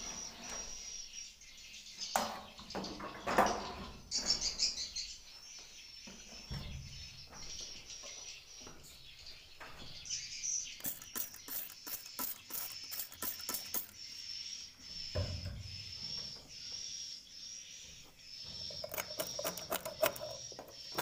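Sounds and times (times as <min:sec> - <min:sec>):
fast run of sharp clicks: 0:10.8 - 0:14.0, 0:18.8 - 0:21.0
swiftlets twittering: 0:10.8 - 0:14.0.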